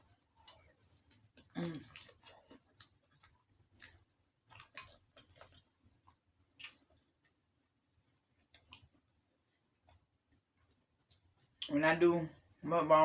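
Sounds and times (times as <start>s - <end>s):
person chewing food: 0.0s - 11.7s
wet mouth clicks and smacks: 6.6s - 7.4s.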